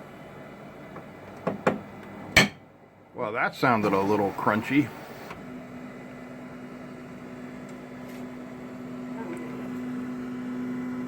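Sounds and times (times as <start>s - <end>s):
printer humming: 3.6s - 11.0s.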